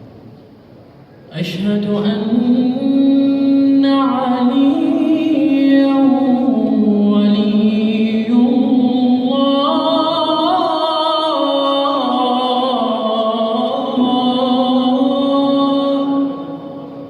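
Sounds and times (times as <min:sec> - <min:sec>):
man chanting call to prayer: 0:01.3 - 0:16.8.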